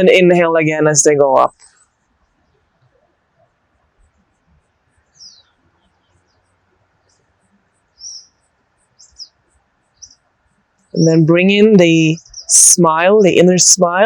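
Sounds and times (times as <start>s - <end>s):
birds chirping: 4.1s - 13.8s.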